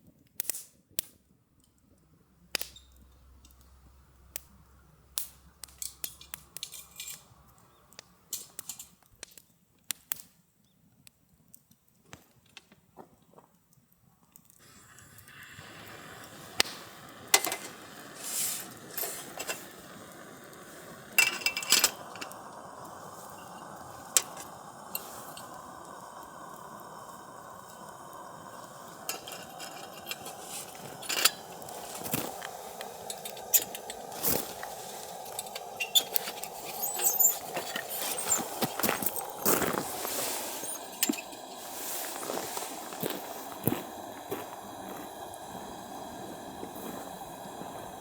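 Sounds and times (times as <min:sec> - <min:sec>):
steady hiss: 0:02.2 - 0:09.1, 0:14.6 - 0:48.0
utensils clinking and scraping: 0:05.7 - 0:07.4, 0:17.4 - 0:19.7, 0:21.2 - 0:25.6, 0:29.0 - 0:43.0.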